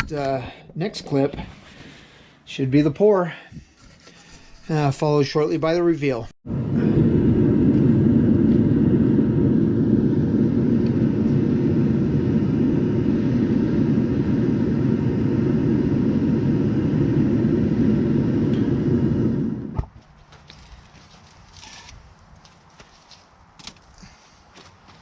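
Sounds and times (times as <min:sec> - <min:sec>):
furnace burner roaring: 0:06.4 - 0:22.0.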